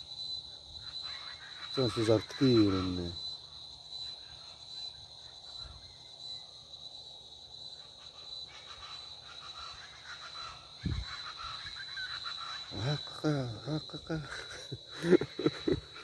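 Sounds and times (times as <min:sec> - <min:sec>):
insects droning trill: 0:00.0 - 0:16.0.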